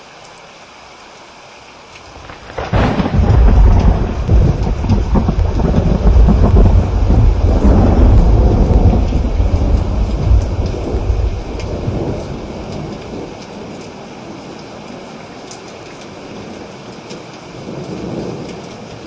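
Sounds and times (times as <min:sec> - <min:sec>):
steady rain: 0:00.0 - 0:19.0
thunder rumbling: 0:02.1 - 0:13.4.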